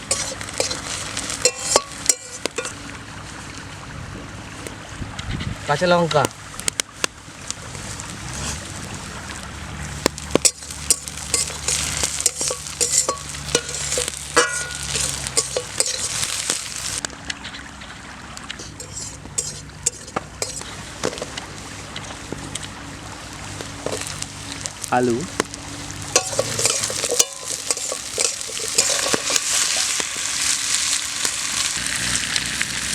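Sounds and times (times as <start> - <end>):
spatula scraping a pan: 0.0 - 2.8, 10.0 - 17.0, 18.6 - 21.3, 26.0 - 31.7
chilies sizzling in hot oil: 0.0 - 3.4, 7.3 - 17.0, 18.6 - 32.9.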